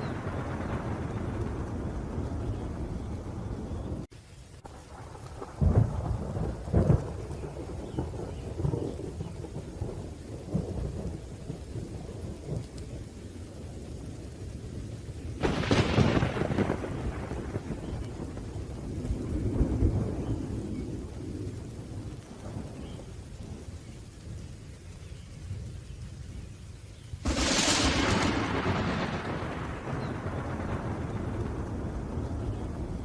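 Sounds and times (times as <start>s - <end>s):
sharp thunderclap: 0.0s - 12.6s, 15.4s - 23.0s, 27.2s - 33.0s
rolling thunder: 0.0s - 24.4s, 27.2s - 33.0s
steady rain: 0.0s - 33.0s.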